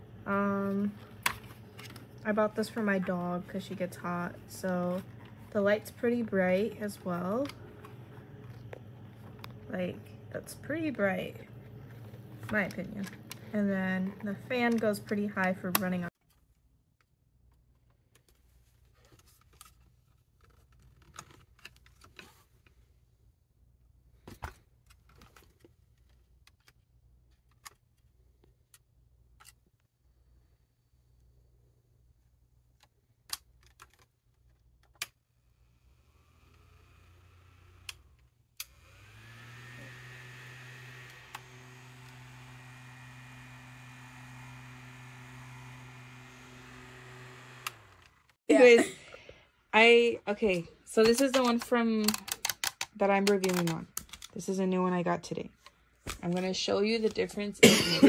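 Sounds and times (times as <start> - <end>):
small fan motor humming: 35.4 - 48.4.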